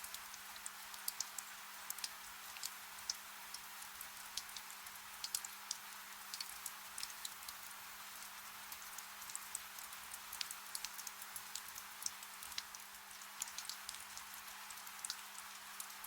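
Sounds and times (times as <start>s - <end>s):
soft rain hiss: 0.0s - 16.0s
raindrop ticks: 4.4s - 7.6s, 8.7s - 15.2s.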